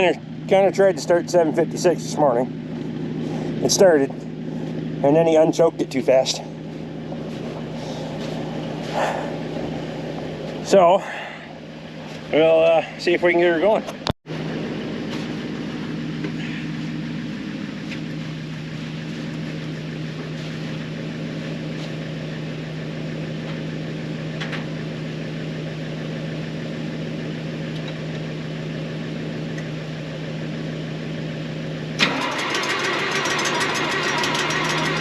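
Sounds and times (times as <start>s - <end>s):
engine rattling roughly: 0.0s - 35.0s
tractor engine cranking: 32.0s - 35.0s.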